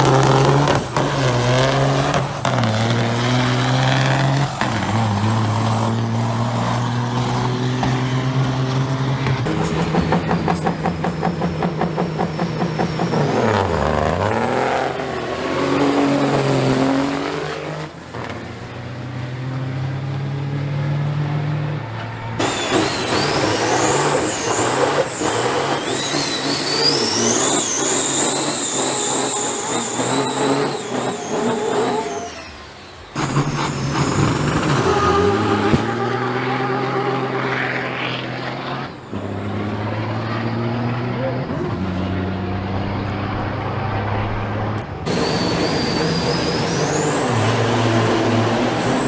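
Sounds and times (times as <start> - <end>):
truck engines accelerating hard: 0.0 - 49.0
high whine rising in pitch: 21.6 - 41.2, 41.9 - 49.0.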